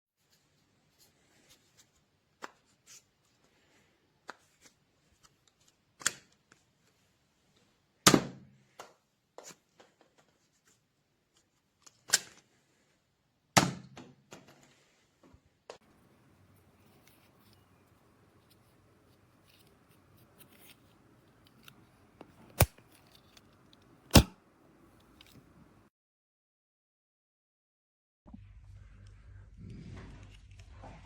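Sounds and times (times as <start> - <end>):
toy blaster sharp snaps: 24.1 - 24.4.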